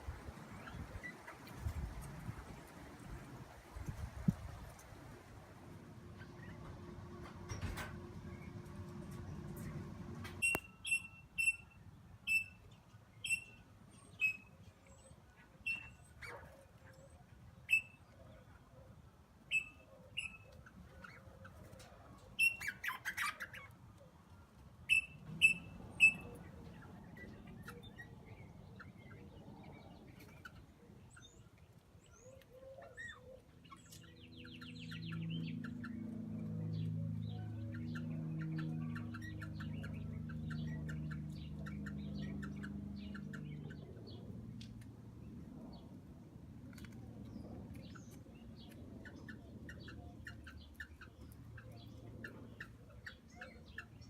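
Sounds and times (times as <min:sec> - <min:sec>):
low steady rumble: 0:01.7 - 0:10.5.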